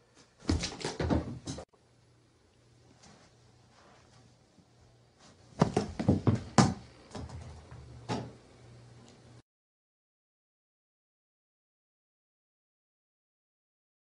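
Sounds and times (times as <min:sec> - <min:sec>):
sharp knocks and thumps: 0:05.6 - 0:07.5.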